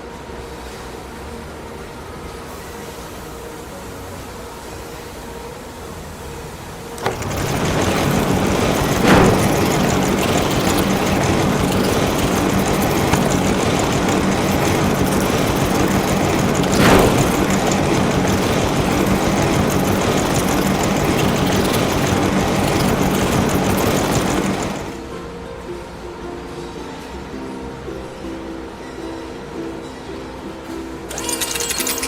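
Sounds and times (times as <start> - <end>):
vehicle engine running: 7.0 - 25.0.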